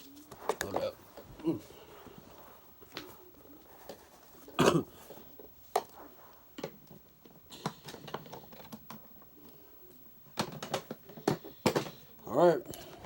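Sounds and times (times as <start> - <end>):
vacuum cleaner parts clicking and knocking: 10.3 - 12.0.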